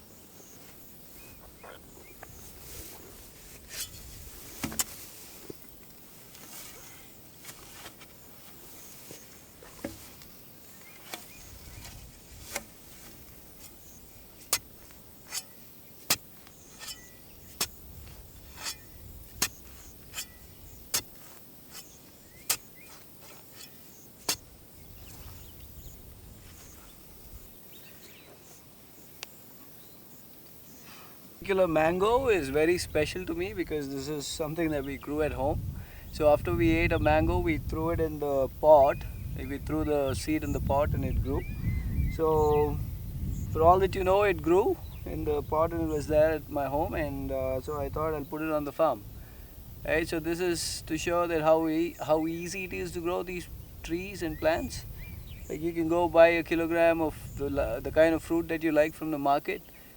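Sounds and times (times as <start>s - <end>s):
bird chirps: 16.4s - 17.6s, 39.0s - 43.6s, 53.5s - 55.7s.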